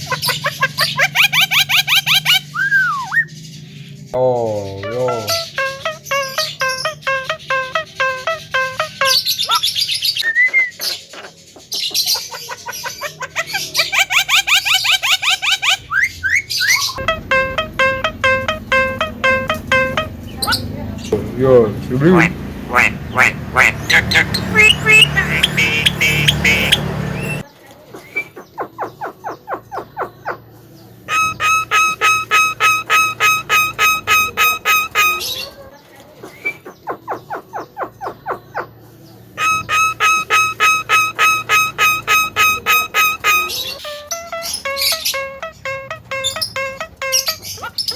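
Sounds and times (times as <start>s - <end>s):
myna calling: 0.0s - 3.2s, 4.1s - 30.5s, 31.1s - 35.7s, 39.4s - 47.9s
loud street noise: 16.9s - 27.6s, 30.4s - 35.6s, 38.4s - 47.9s.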